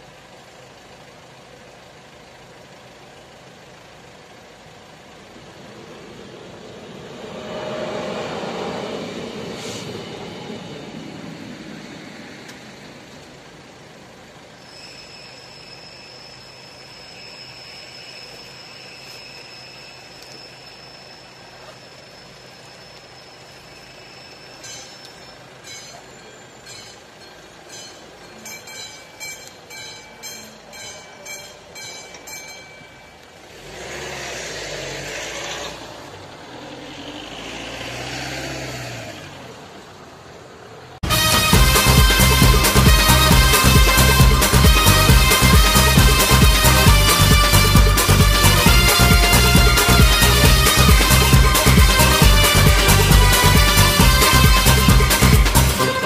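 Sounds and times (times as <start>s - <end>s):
road vehicles passing: 0.0s - 56.0s
train running: 3.1s - 33.6s, 41.0s - 56.0s
steady high tone: 5.2s - 12.8s, 14.6s - 33.4s, 41.0s - 56.0s
level crossing warning bell: 14.6s - 33.6s, 41.1s - 56.0s.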